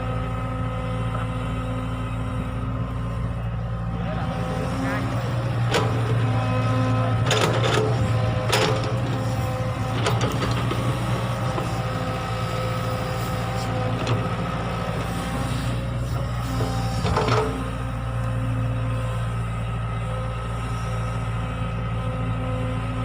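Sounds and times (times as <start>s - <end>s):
excavator diesel engine running: 0.0s - 23.0s
machine knocks and clanks: 7.2s - 11.1s.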